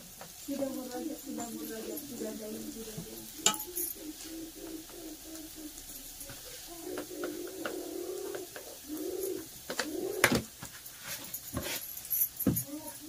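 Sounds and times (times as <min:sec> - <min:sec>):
bird cooing: 0:00.5 - 0:10.5.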